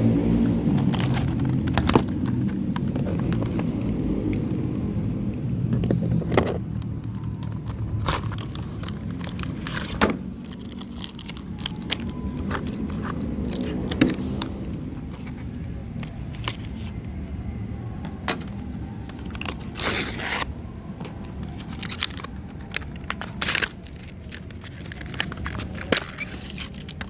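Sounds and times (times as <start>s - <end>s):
low hum: 0.0s - 26.7s.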